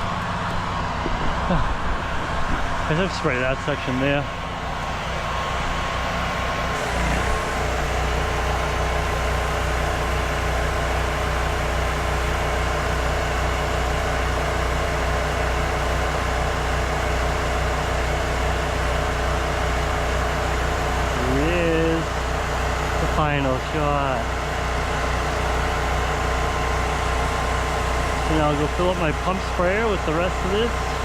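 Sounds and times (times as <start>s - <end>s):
generator engine running: 0.0s - 31.0s
sprayer hiss: 6.7s - 10.1s.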